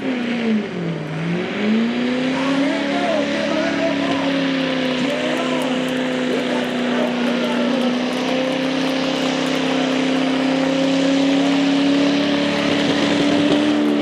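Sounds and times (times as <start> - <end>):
truck engine revving high: 0.0 - 14.0.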